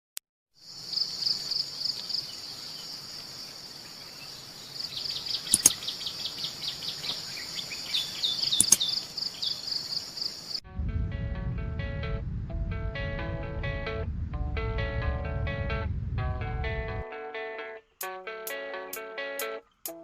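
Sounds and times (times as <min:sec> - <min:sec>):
insects trilling: 0:00.6 - 0:10.6
bird chirps: 0:01.1 - 0:10.6.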